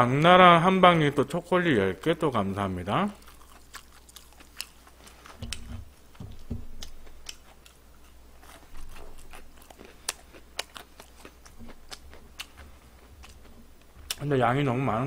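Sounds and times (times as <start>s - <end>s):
person chewing crunchy food: 2.0s - 14.3s
soft low thuds: 5.4s - 7.0s.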